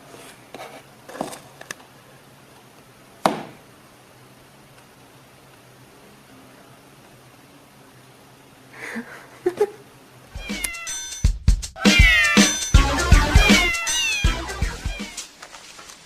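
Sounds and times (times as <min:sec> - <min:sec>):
cat meowing: 0:10.3 - 0:11.0, 0:11.8 - 0:12.7, 0:13.3 - 0:15.2
music: 0:10.3 - 0:15.4.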